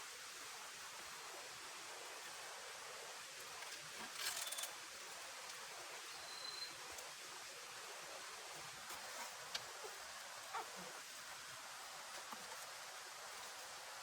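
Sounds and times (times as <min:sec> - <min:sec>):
soft forest ambience hiss: 0:00.0 - 0:14.0.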